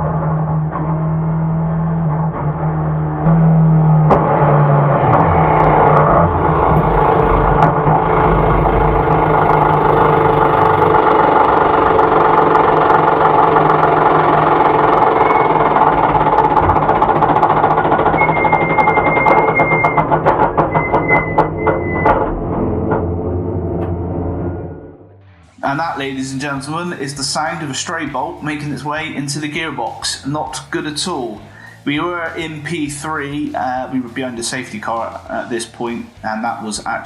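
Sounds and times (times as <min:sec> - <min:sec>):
race car engine running hard: 0:00.0 - 0:24.0
rapid pulsing with high whine: 0:00.0 - 0:29.5.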